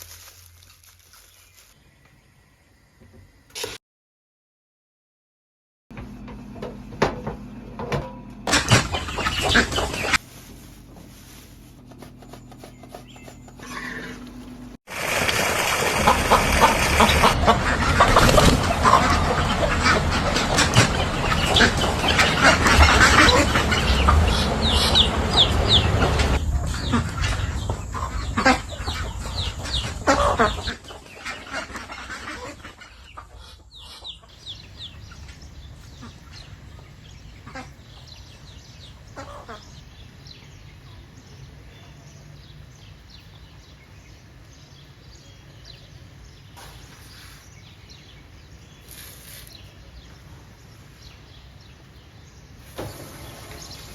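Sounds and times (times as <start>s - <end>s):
chickens clucking: 6.2s - 14.7s, 15.6s - 39.8s.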